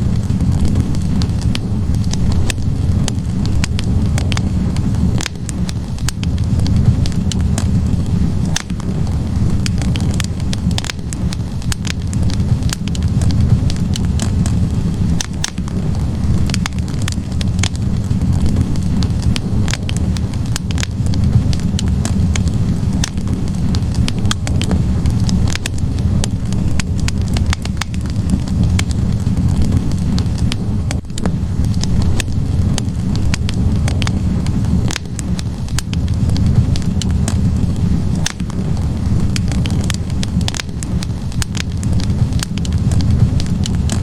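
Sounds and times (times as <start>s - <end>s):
burning logs crackling and popping: 0.0s - 44.0s
low rumble of flames: 0.0s - 44.0s.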